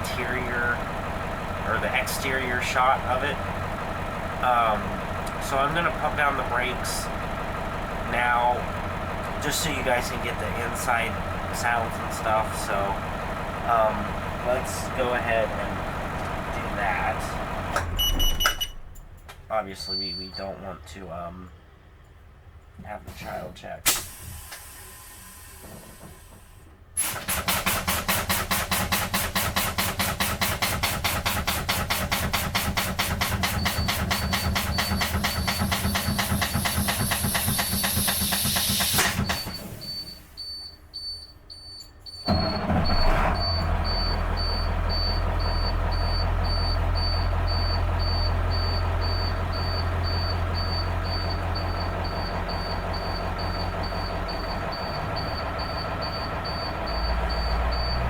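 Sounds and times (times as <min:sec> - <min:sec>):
diesel engine humming: 0:00.0 - 0:58.0.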